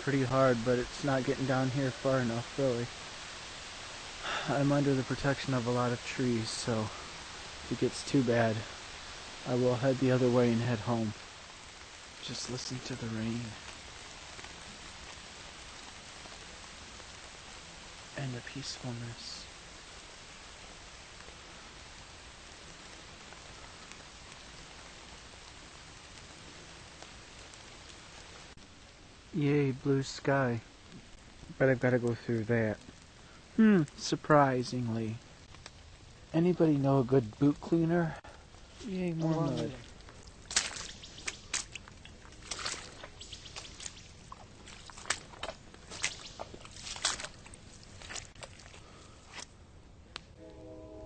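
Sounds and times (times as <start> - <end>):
rain falling on leaves: 0.0 - 50.4
boots squelching through mud: 38.5 - 49.5.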